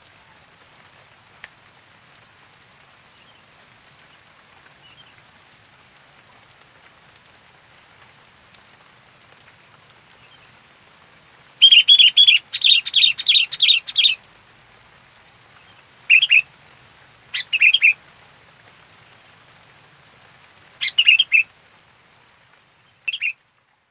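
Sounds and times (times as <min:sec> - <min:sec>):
faint hiss: 0:00.0 - 0:23.9
bird singing bubbly notes: 0:11.6 - 0:14.2, 0:23.1 - 0:23.3.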